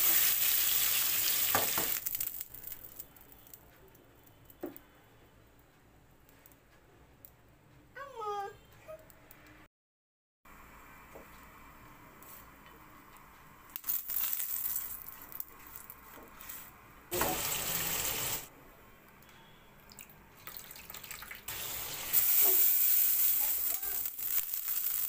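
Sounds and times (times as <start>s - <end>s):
food sizzling in hot oil: 0.0s - 3.0s, 13.8s - 15.4s, 17.1s - 18.5s, 20.8s - 25.0s.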